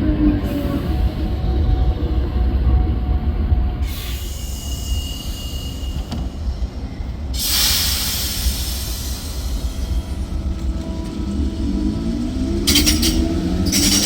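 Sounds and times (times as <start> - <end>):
train rumbling: 0.0 - 14.0
loud hiss: 7.4 - 9.9
thin high squeal: 12.7 - 14.0.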